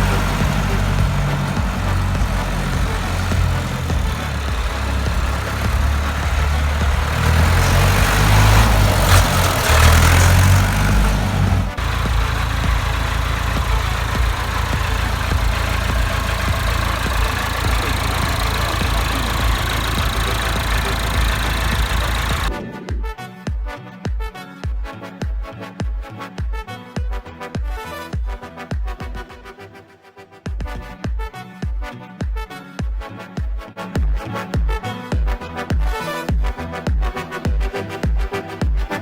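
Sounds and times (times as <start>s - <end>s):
tractor diesel engine running: 0.0s - 22.6s.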